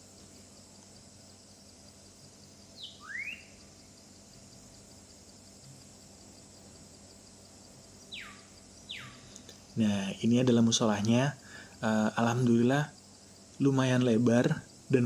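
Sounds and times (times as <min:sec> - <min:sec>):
faint high-pitched outdoor hiss: 0:00.0 - 0:15.0
bird call: 0:02.8 - 0:03.6, 0:08.1 - 0:09.3.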